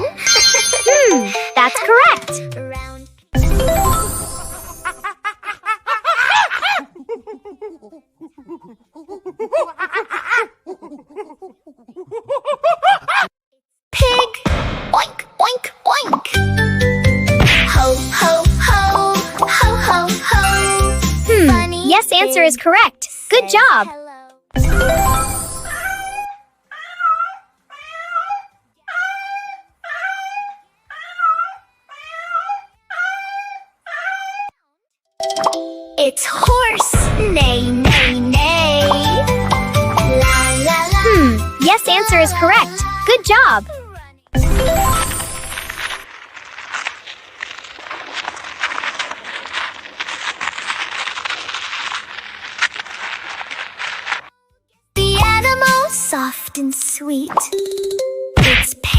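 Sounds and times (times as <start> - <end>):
cartoon-style giggling: 4.5 - 13.3
small animal crying: 26.7 - 29.3.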